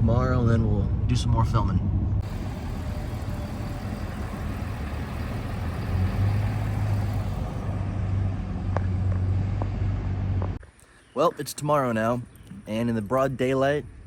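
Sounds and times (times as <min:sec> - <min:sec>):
road noise: 0:00.0 - 0:10.6
truck engine drone: 0:02.0 - 0:10.6.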